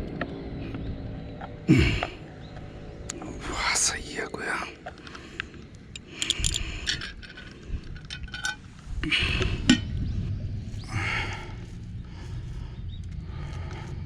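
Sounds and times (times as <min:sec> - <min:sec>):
hard objects clinking: 0:05.9 - 0:08.8.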